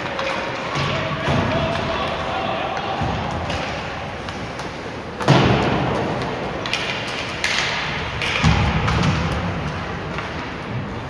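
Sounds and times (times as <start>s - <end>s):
puck banging against boards: 0.0s - 11.0s
skates scraping on ice: 0.0s - 11.0s.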